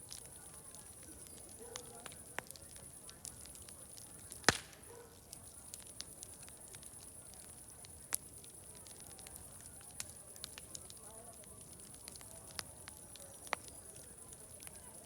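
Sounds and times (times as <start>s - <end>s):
fire crackling: 0.0s - 15.0s
loud sharp pop: 4.4s - 4.8s.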